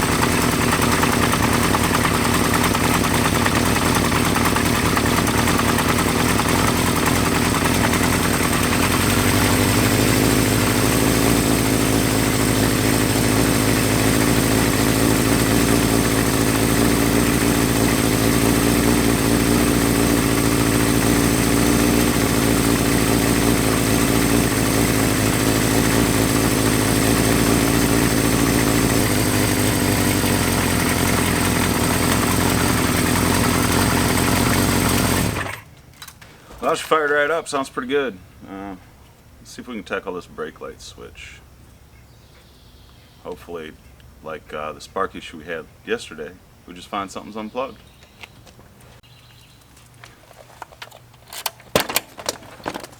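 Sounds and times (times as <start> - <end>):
motorcycle engine idling: 0.0 - 35.7.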